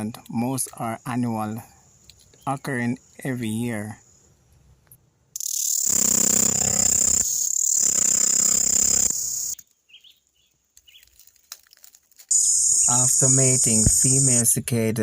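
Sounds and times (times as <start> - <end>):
cicada buzzing: 5.4 - 9.6, 12.3 - 14.5.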